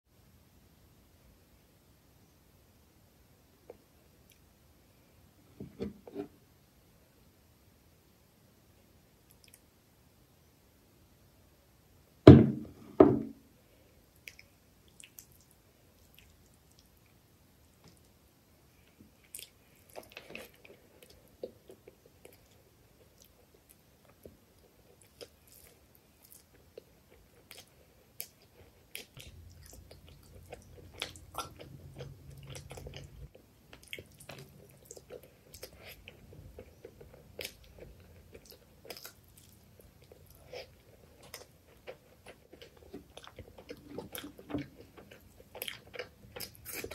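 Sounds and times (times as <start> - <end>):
close-miked chewing: 14.2 - 17.2, 18.8 - 46.9.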